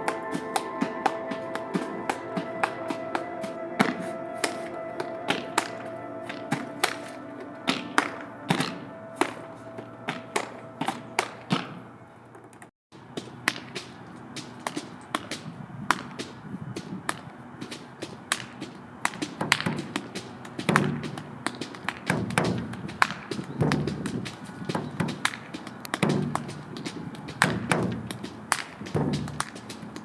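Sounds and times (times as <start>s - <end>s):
body percussion claps and slaps: 0.0s - 11.8s, 13.5s - 30.0s
background music with held tone: 0.0s - 12.1s
low thuds: 19.2s - 30.0s.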